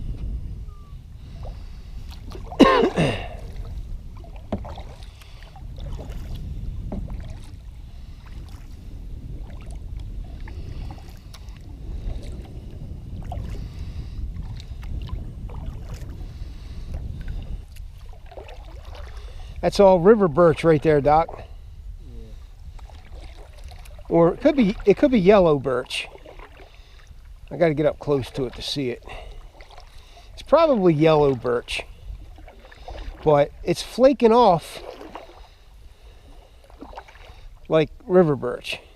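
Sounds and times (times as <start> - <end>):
wind rumble on microphone: 0.0 - 38.9
paddle strokes in water: 1.2 - 38.9.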